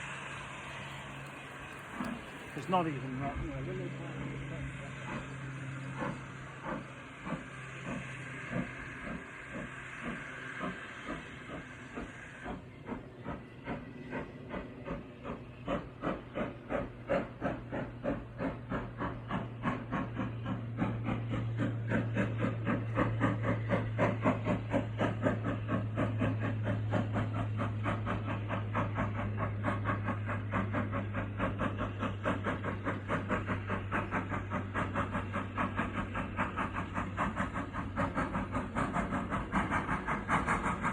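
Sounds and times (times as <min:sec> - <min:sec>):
steam hissing: 0:00.0 - 0:40.9
steam locomotive exhaust chuffs: 0:00.0 - 0:40.9.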